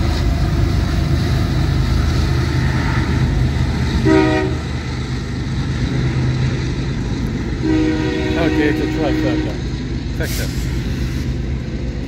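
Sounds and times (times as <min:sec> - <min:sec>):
diesel locomotive idling: 0:00.0 - 0:12.0
train rolling past: 0:00.0 - 0:12.0
train horn toot: 0:04.0 - 0:04.7, 0:07.6 - 0:09.6.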